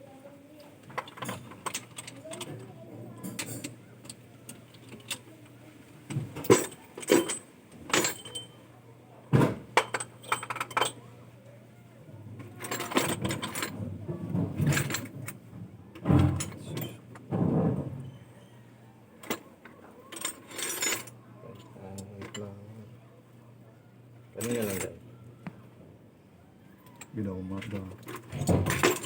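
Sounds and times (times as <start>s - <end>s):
metallic clinks and knocks: 0.8s - 5.3s, 6.1s - 8.6s, 9.6s - 11.1s, 12.4s - 18.4s, 19.2s - 22.5s, 24.4s - 25.6s, 26.8s - 29.0s.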